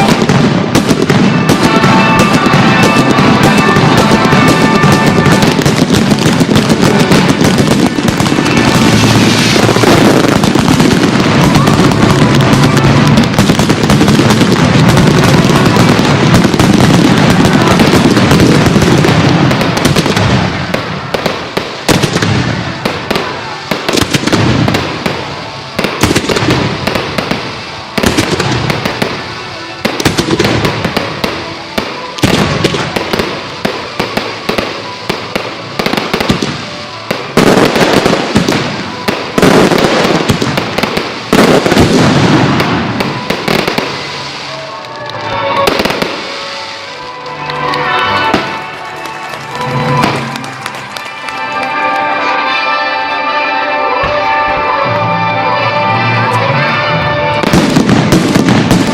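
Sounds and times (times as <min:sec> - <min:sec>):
show music: 0:00.0 - 0:20.4, 0:42.6 - 0:58.9
fireworks bangs and crackles: 0:00.0 - 0:58.9.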